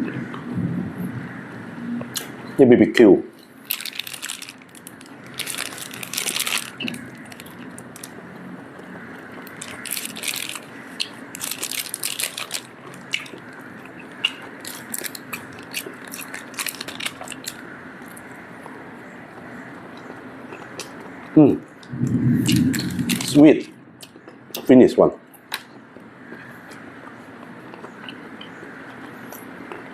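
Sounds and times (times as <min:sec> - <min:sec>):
person biting and chewing meat: 0:09.4 - 0:17.6.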